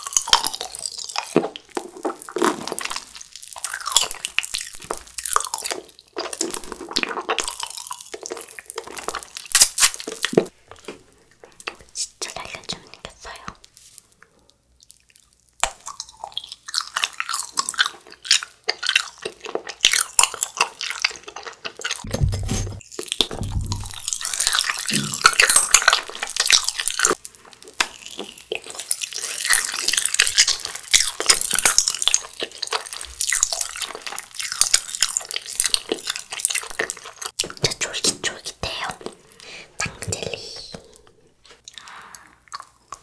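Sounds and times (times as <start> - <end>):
wet sticky chewing: 0.0 - 11.9, 14.5 - 22.1, 22.9 - 37.6, 40.8 - 43.0
low thuds: 22.0 - 25.4.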